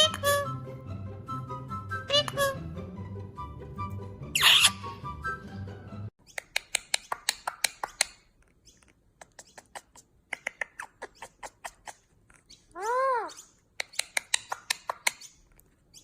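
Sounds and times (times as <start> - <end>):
small animal squeaking: 4.4 - 5.0, 8.5 - 16.0.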